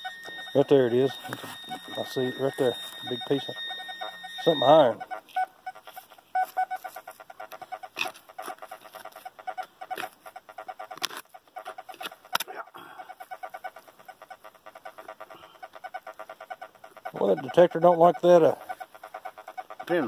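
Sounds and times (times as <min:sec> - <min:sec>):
metal detector pulsed tone: 0:00.0 - 0:10.9, 0:15.6 - 0:20.0.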